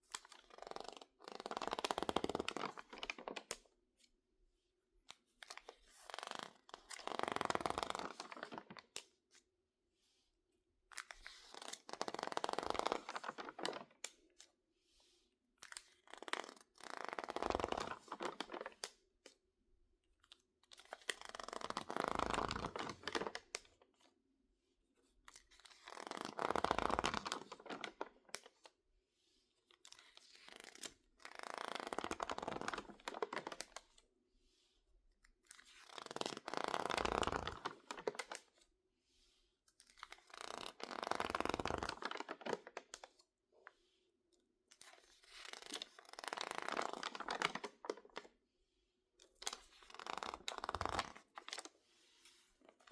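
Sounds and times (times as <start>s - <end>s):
crinkled pages crackling: 0.2s - 3.6s, 6.2s - 9.1s, 11.0s - 14.2s, 15.7s - 18.9s, 25.6s - 28.6s, 30.0s - 33.9s, 35.5s - 38.4s, 39.9s - 43.2s, 44.8s - 48.3s, 49.4s - 52.9s.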